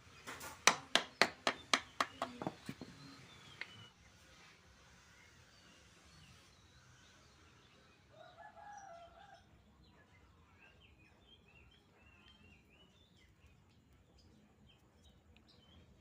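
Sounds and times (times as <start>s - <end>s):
small birds chirping: 0.0s - 4.2s, 4.9s - 16.0s
faint rooster crowing: 8.0s - 9.7s.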